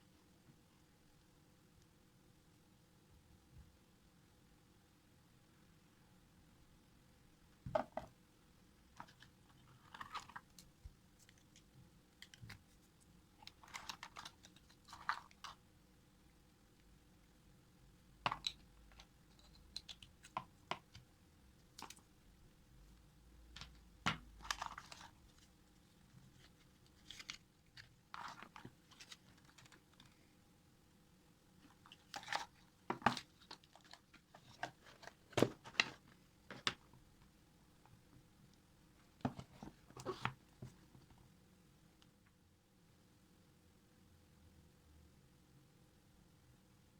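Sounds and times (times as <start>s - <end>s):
objects being handled: 8.9s - 15.6s, 18.2s - 22.1s, 23.5s - 30.2s, 31.6s - 37.0s, 39.2s - 41.2s.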